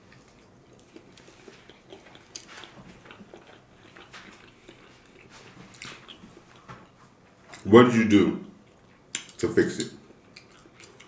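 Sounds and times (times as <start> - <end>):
person chewing food: 0.0 - 7.6, 10.0 - 11.0.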